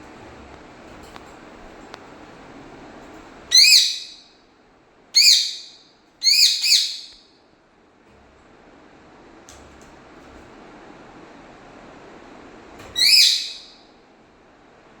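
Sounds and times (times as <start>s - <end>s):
parrot calling shrilly: 3.5s - 4.2s, 5.2s - 7.2s, 13.0s - 13.8s.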